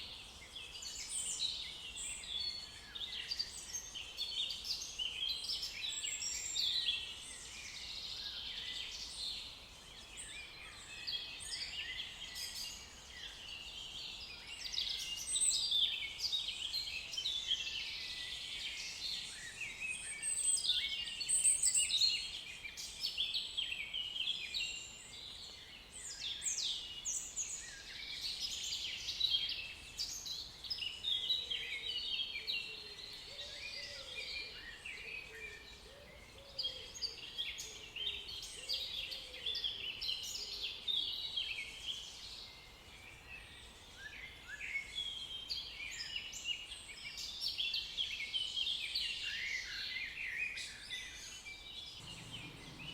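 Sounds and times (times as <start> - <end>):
songbirds singing and chirping: 0.0 - 52.9.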